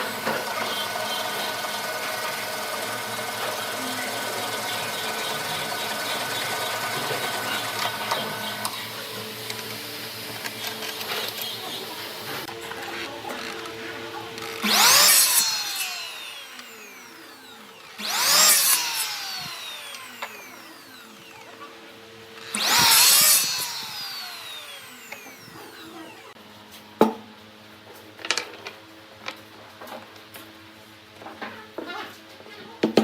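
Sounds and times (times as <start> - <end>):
power tool winding down: 0.0 - 26.4.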